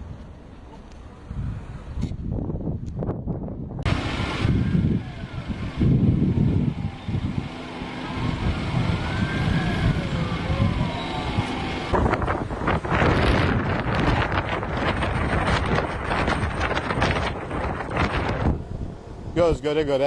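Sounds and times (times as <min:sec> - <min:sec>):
low rumble of wind and traffic: 0:00.0 - 0:20.0
siren wailing: 0:03.9 - 0:17.3.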